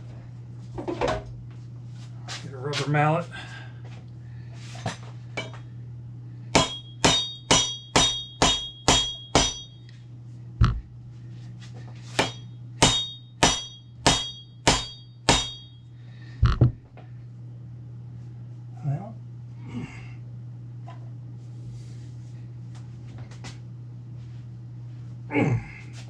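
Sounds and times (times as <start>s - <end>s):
rubber mallet striking steel: 6.6s - 9.8s, 12.2s - 15.8s.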